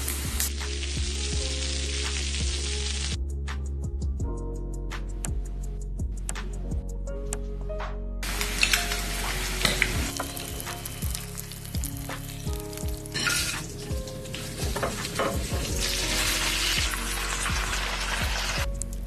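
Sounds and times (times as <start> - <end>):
hot oil sizzling in a pan: 0.0 - 3.2, 8.2 - 19.0
soft background music: 0.0 - 19.0.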